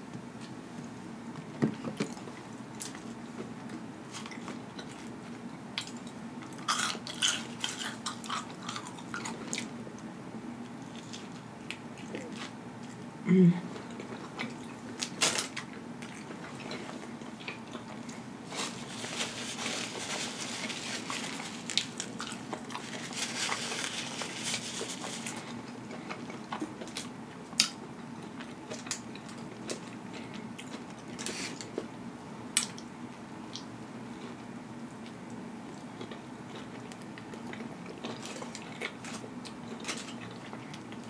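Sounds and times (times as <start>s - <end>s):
chewing and biting burger: 35.7s - 41.0s.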